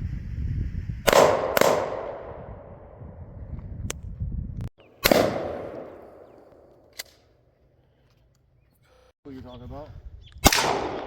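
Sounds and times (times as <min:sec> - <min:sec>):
wind rumble on microphone: 0:00.0 - 0:04.7, 0:09.3 - 0:11.0
gunshots with echo: 0:01.1 - 0:02.4, 0:05.0 - 0:06.4, 0:10.4 - 0:11.0.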